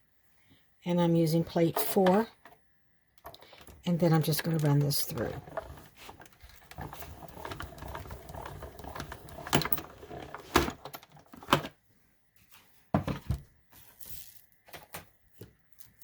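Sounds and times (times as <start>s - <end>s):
hand-cranked machine rattling and clicking: 3.2s - 11.6s.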